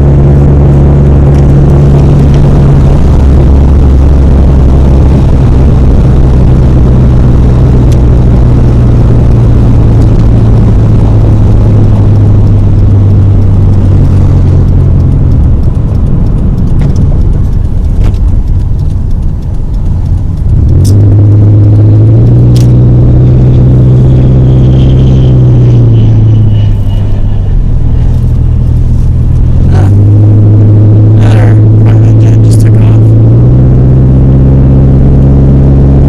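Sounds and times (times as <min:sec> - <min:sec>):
car engine accelerating: 0:00.0 - 0:36.0
sharp clicks: 0:09.9 - 0:30.6.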